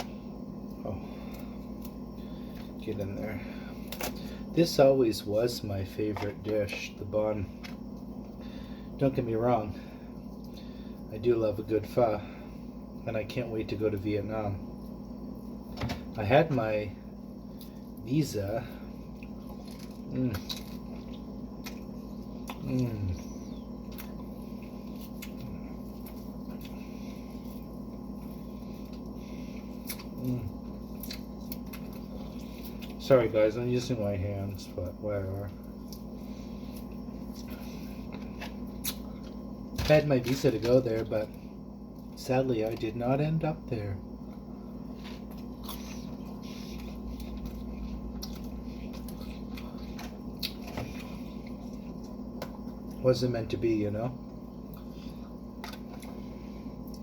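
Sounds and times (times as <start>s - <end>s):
steady low hum: 0.0s - 57.0s
food squishing in hands: 16.6s - 42.9s, 44.0s - 53.1s, 54.2s - 57.0s
chewing: 18.8s - 33.0s, 44.2s - 53.0s, 54.3s - 57.0s.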